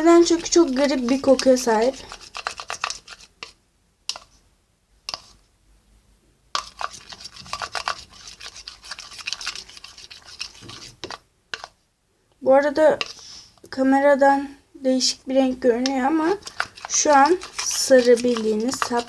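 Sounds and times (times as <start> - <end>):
spoon scraping slime in container: 0.0 - 4.4, 5.1 - 5.4, 6.6 - 11.8, 13.0 - 13.2, 15.8 - 19.0.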